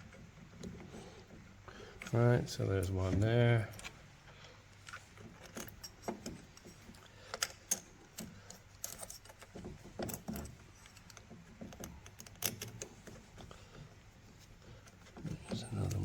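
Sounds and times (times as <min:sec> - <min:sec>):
metal clicks of bolts and nuts: 0:04.7 - 0:13.5.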